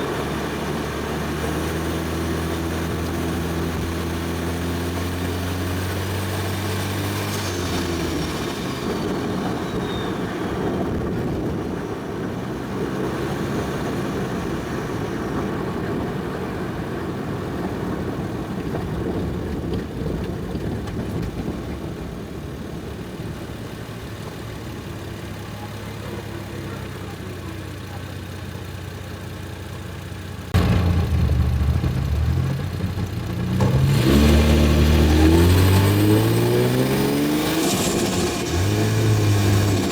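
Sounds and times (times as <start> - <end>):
engine revving under acceleration: 0.0 - 10.3, 30.5 - 39.9
car engine hum: 0.0 - 16.3, 23.2 - 39.9.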